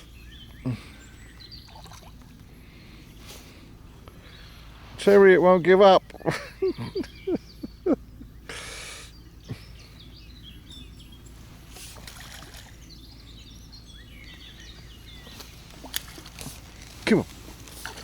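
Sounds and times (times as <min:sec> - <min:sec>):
small birds singing and chirping: 0:00.0 - 0:18.0
short low grunts: 0:00.6 - 0:01.3.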